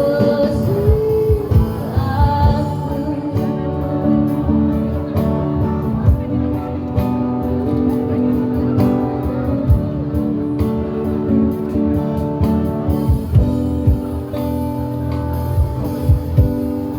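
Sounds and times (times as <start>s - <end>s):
guitar strummed and plucked: 0.0s - 16.9s
low thumping beats: 11.6s - 16.9s.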